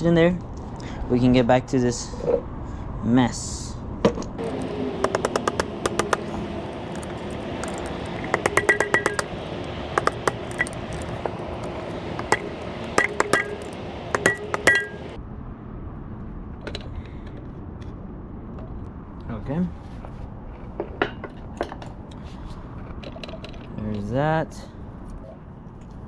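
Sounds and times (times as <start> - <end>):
metal parts and tools clinking: 4.4 - 15.2.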